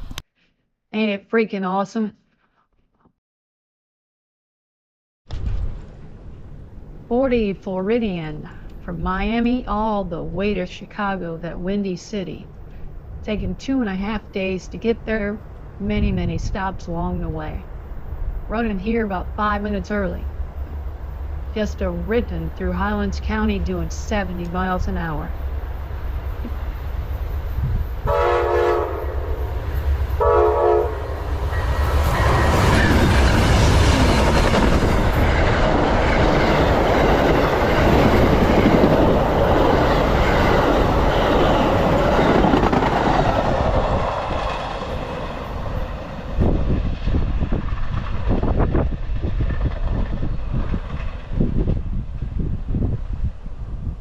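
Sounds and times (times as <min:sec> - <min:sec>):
wind noise on microphone: 0:15.2 - 0:25.3, 0:26.2 - 0:54.0
train passing with wheel clatter: 0:15.4 - 0:15.8, 0:17.5 - 0:19.4, 0:20.0 - 0:54.0
train horn blasts: 0:28.0 - 0:31.2.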